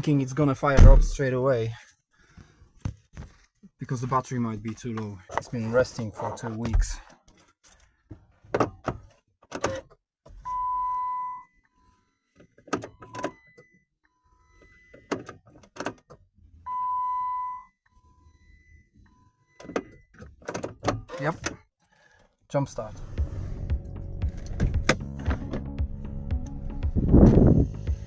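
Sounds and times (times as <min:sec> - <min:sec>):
car warning chime beeping: 0:10.5 - 0:11.5, 0:16.7 - 0:20.2.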